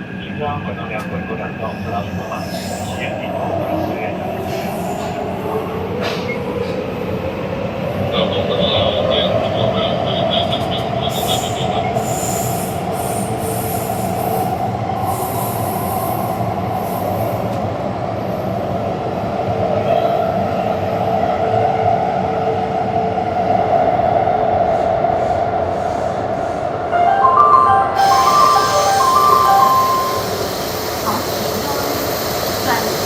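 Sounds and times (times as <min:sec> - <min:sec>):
stepped chime melody: 0:27.0 - 0:31.2.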